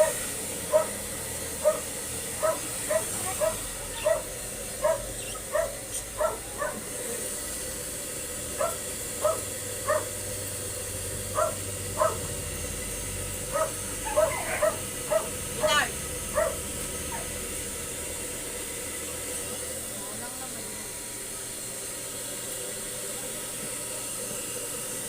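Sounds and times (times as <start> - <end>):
dog barking in yips: 0.0 - 1.0, 1.6 - 1.8, 2.4 - 6.8, 8.6 - 10.1, 11.4 - 12.2, 13.5 - 17.3.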